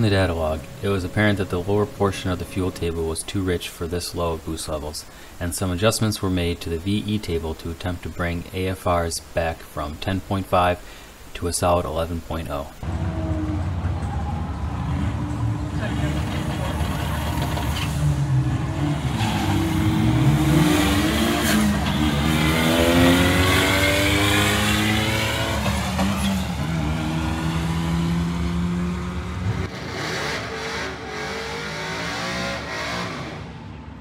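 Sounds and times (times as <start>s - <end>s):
car engine accelerating: 12.8s - 34.0s.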